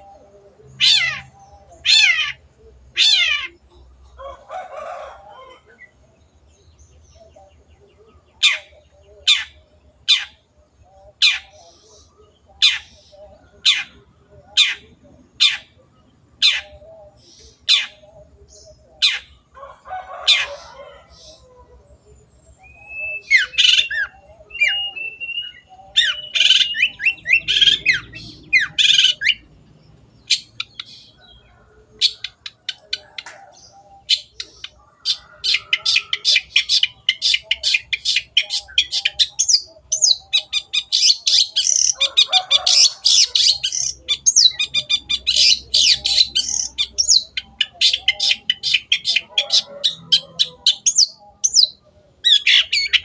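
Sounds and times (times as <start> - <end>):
shrike squawks and whistles: 22.6 - 29.4
fast bird chattering: 22.9 - 29.5, 30.2 - 31.4, 32.0 - 53.0.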